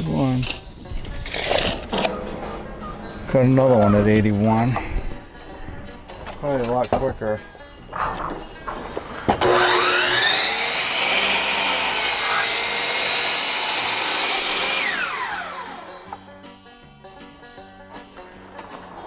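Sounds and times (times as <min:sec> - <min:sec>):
circular saw cutting wood: 0:07.9 - 0:16.2.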